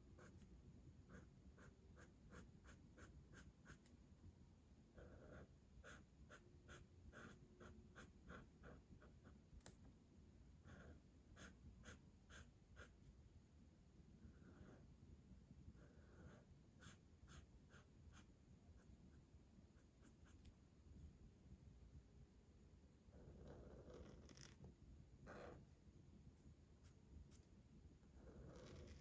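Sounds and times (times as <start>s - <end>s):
colouring tool scratching on paper: 1.1s - 3.9s, 5.0s - 9.4s, 10.6s - 13.0s, 15.8s - 18.9s.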